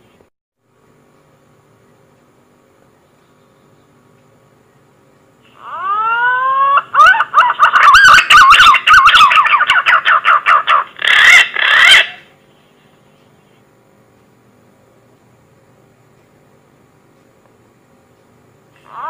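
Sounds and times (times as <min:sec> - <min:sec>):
pigeon whistled song: 0:05.8 - 0:12.2.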